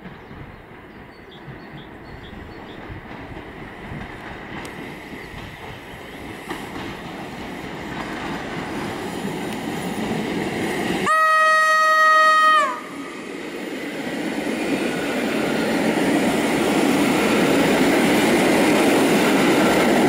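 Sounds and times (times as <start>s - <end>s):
train wheels on rails: 0.0s - 20.0s
train horn chord: 11.0s - 12.9s.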